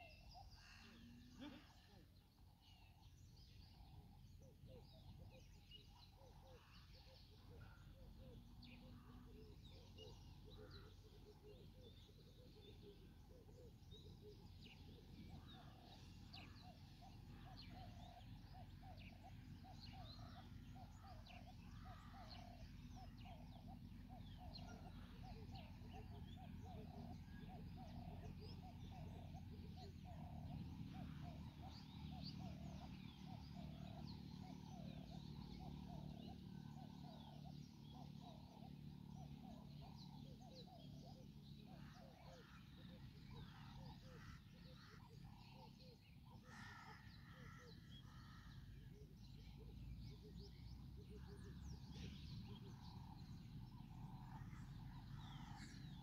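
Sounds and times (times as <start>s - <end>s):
small birds chirping: 0.0s - 56.0s
low steady rumble: 0.2s - 56.0s.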